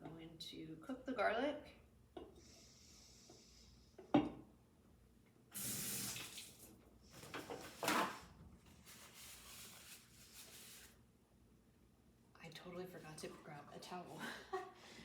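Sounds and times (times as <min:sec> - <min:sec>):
water splashing from a tap: 0:05.6 - 0:06.8.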